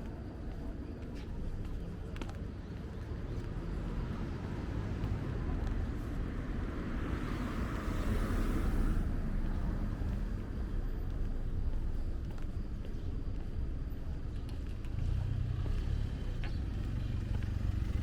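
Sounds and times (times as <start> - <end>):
cars rumbling: 0.0 - 18.0
car passing: 3.1 - 11.2.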